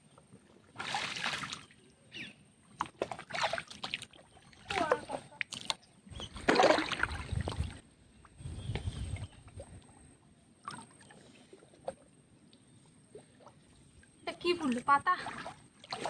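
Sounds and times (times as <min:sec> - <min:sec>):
river water splashing: 0:00.7 - 0:01.8, 0:02.8 - 0:05.8, 0:06.4 - 0:07.8, 0:14.4 - 0:16.0.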